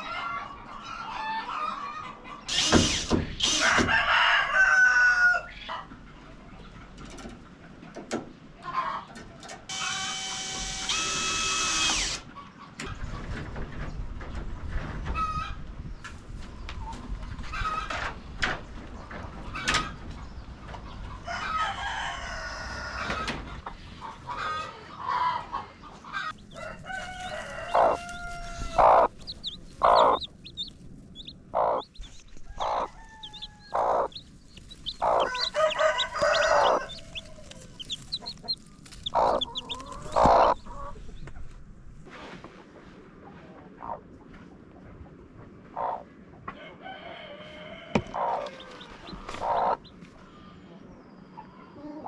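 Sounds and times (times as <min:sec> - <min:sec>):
chickens clucking: 0:00.0 - 0:02.5, 0:03.3 - 0:10.0, 0:12.2 - 0:41.6, 0:42.5 - 0:52.0
rooster crowing: 0:03.5 - 0:05.5, 0:21.2 - 0:23.3, 0:26.5 - 0:29.1, 0:32.4 - 0:34.1, 0:35.0 - 0:38.0, 0:46.6 - 0:49.3.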